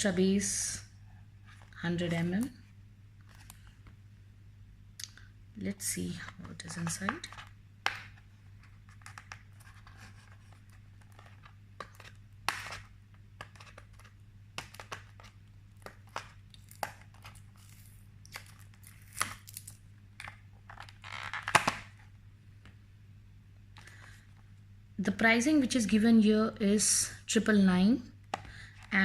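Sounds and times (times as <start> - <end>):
low steady hum: 0.0 - 29.0
packaging tearing and crinkling: 9.9 - 19.8.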